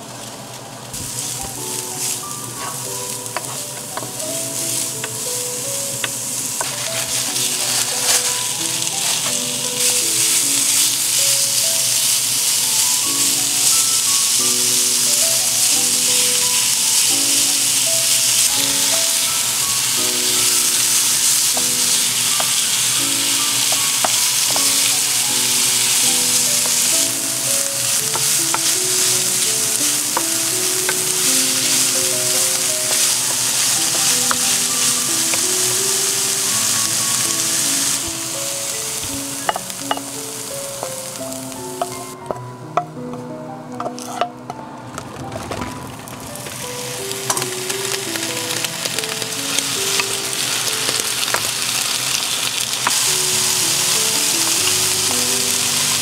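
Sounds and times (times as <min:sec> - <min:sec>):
onion sizzling in a frying pan: 0:00.0 - 0:56.0
light background music: 0:00.9 - 0:56.0
wooden spatula scraping a pan: 0:01.0 - 0:12.6, 0:17.7 - 0:38.0, 0:43.8 - 0:44.3.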